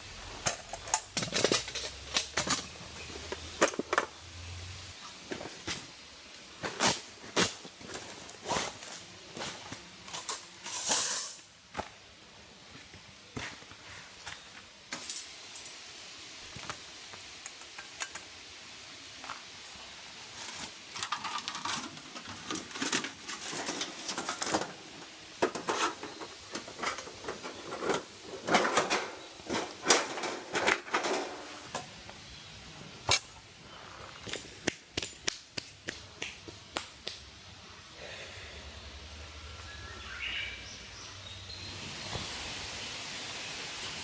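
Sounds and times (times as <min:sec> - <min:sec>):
metal camping gear clinking: 0:00.4 - 0:03.0, 0:10.1 - 0:11.5, 0:20.4 - 0:31.9, 0:34.2 - 0:35.3
scraping and rustling: 0:20.3 - 0:32.0.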